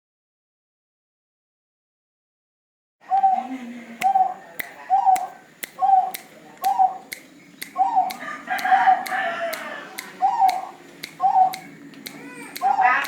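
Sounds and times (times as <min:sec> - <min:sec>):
dove cooing: 0:03.1 - 0:13.0
sharp clicks: 0:04.0 - 0:12.8.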